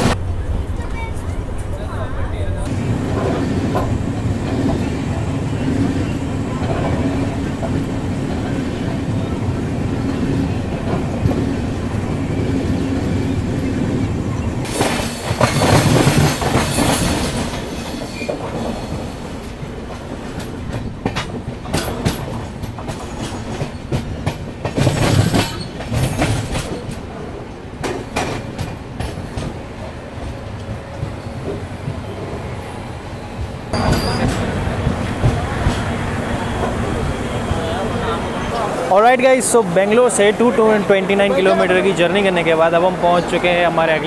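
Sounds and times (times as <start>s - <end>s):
train rushing: 0.0s - 44.0s
train wheel rumble: 0.0s - 44.0s
wheels clacking over rail joints: 2.6s - 32.0s.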